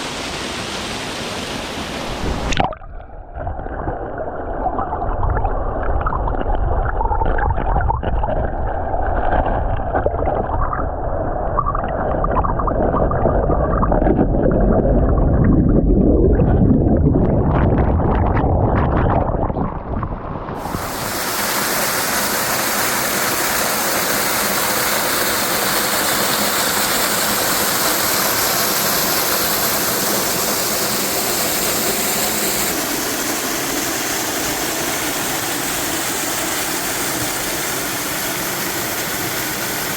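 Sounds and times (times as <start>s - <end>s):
waterfall pouring into pool: 20.6s - 39.9s.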